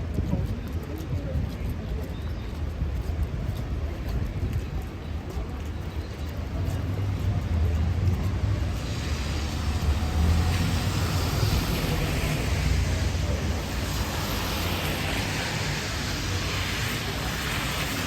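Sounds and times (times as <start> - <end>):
vehicle engine rumble: 0.0 - 18.0
tyres hissing on wet road: 6.8 - 18.0.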